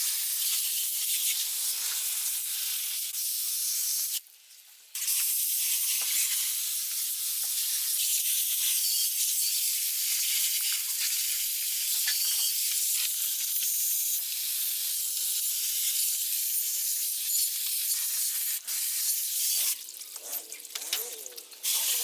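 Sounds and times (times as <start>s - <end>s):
steady spraying hiss: 21.6s - 22.0s.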